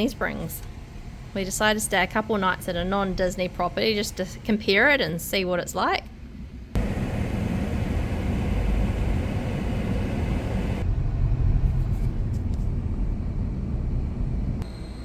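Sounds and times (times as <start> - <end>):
car road and engine rumble: 6.8 - 14.6.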